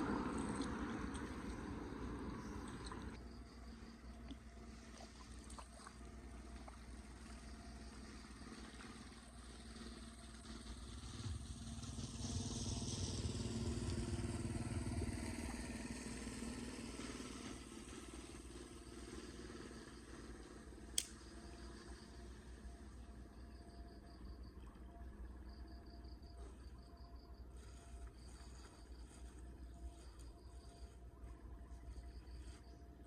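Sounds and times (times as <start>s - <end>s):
vehicle passing by: 0.0s - 3.2s, 11.0s - 18.3s
low outdoor background: 0.0s - 33.0s
sharp click: 20.9s - 21.4s.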